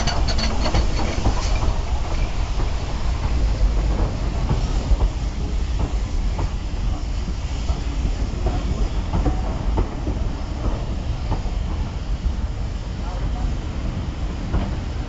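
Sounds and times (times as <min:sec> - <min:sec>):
wheels clicking over rail joints: 0:00.0 - 0:02.2
train wheels rumbling: 0:00.0 - 0:15.0.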